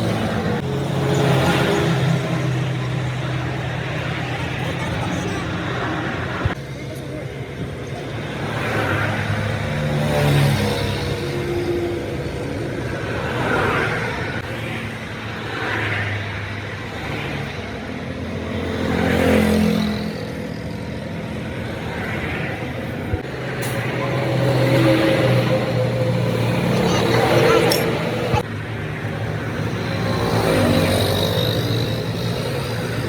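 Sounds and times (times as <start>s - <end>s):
vehicles passing: 0.0s - 33.0s.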